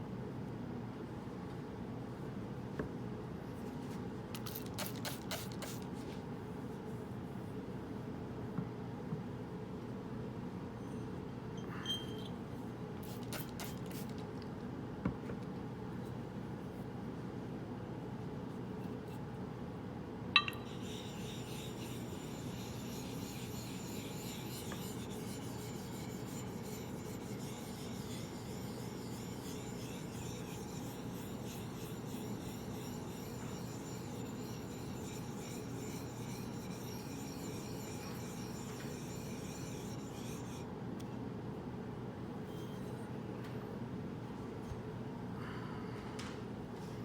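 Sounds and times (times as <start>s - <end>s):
razor scraping on whetstone: 4.4s - 5.9s, 13.0s - 14.2s, 20.6s - 40.6s.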